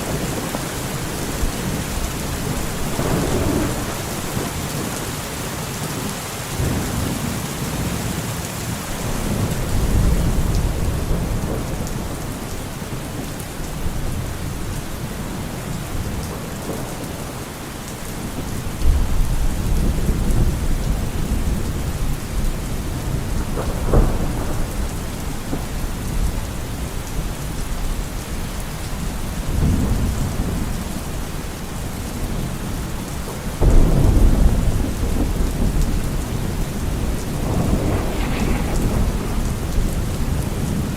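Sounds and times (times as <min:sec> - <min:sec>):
thunder rumbling: 0:00.0 - 0:08.2, 0:08.9 - 0:17.4, 0:18.2 - 0:40.9
steady rain: 0:00.0 - 0:40.9
sharp thunder clap: 0:00.1 - 0:05.0, 0:09.0 - 0:12.3, 0:33.6 - 0:40.9.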